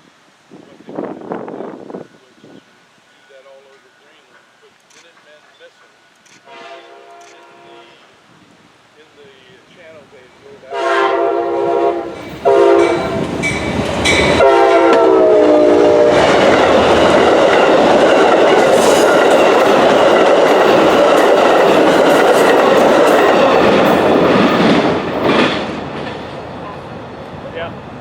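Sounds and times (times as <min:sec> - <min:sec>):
train horn blasts: 0:06.4 - 0:08.2, 0:10.6 - 0:13.3, 0:14.2 - 0:16.4
train wheels clattering on rails: 0:12.1 - 0:15.1, 0:15.8 - 0:26.8.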